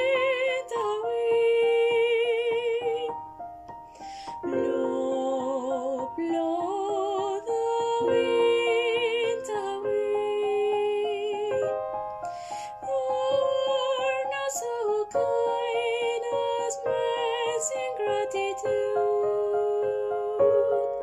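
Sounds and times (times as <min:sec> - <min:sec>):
piano accompaniment: 0:00.0 - 0:21.0
vocal ensemble singing in harmony: 0:04.6 - 0:11.6, 0:12.5 - 0:21.0.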